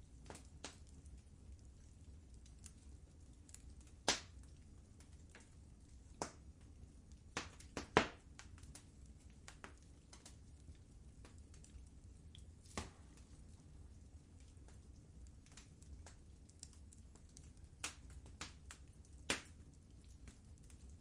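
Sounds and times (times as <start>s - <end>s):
wood fire crackling: 0.0s - 21.0s
sharp pops of fire: 0.2s - 0.9s, 3.5s - 5.5s, 6.2s - 6.4s, 7.3s - 10.4s, 12.6s - 13.3s, 15.4s - 19.6s.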